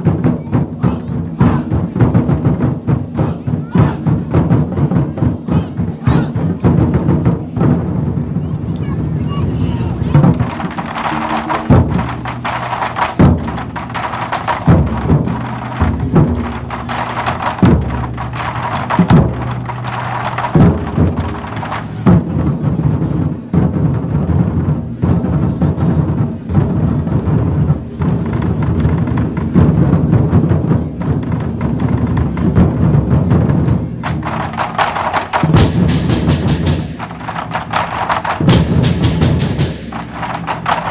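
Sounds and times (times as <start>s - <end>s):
lion dance drumming: 0.0s - 40.9s
cymbals clashing: 10.4s - 22.0s, 34.1s - 40.9s.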